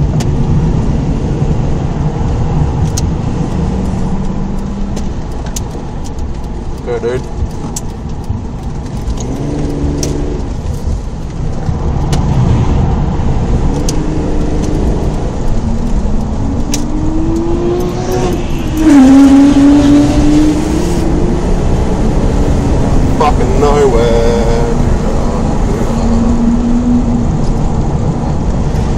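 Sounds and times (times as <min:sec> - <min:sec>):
car engine accelerating: 0:00.0 - 0:28.9
sharp clicks: 0:04.2 - 0:12.4.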